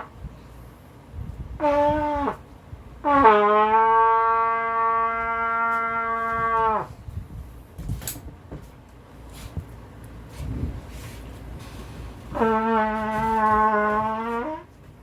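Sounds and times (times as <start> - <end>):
trumpet notes: 1.6 - 2.4, 3.0 - 7.0, 12.3 - 14.8.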